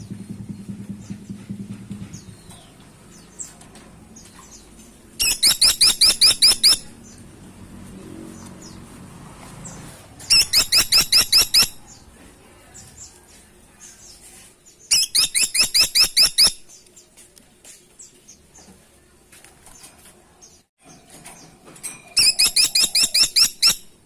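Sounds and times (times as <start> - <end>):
woodpecker calling sharp high notes: 5.2 - 6.9, 10.3 - 11.8, 14.9 - 16.7, 22.2 - 23.9
faint bird chirps: 10.3 - 12.1.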